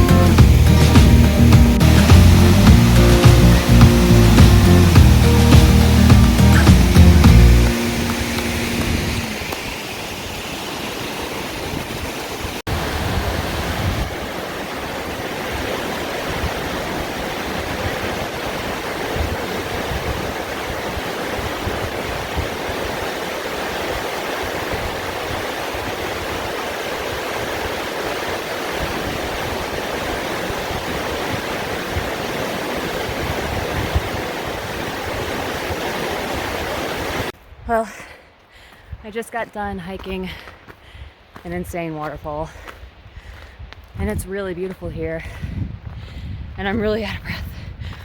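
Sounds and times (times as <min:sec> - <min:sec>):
waterfall roaring: 0:00.0 - 0:37.9.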